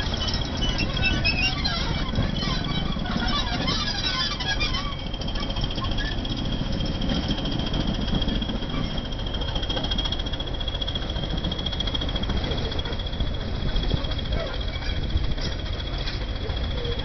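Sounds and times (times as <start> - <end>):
locomotive engine rumble: 0.0 - 17.0
steady high whistle: 3.6 - 14.4.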